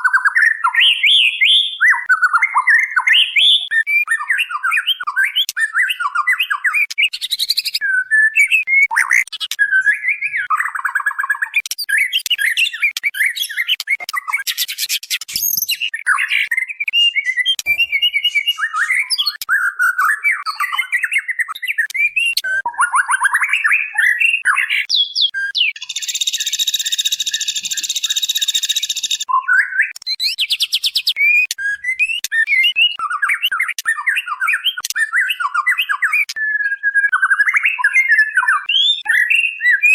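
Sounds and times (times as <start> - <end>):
bird calling with chirps: 0.0 - 39.9.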